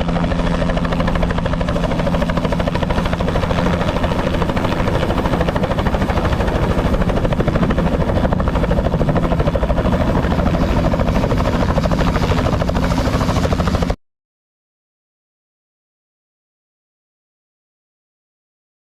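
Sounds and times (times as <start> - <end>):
helicopter rotor and engine: 0.0 - 14.0.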